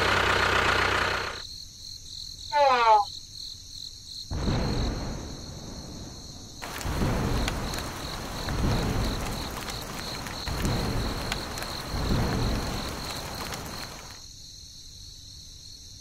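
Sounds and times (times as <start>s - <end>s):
rain falling: 0.0s - 1.4s, 5.9s - 14.2s
crickets chirping: 0.0s - 16.0s
thunder rolling: 4.3s - 14.2s.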